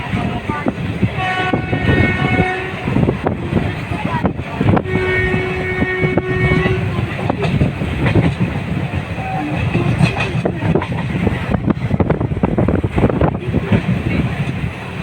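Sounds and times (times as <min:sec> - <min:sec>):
train clickety-clack on rails: 0:00.0 - 0:15.0
train horn: 0:01.1 - 0:03.2, 0:04.7 - 0:07.4.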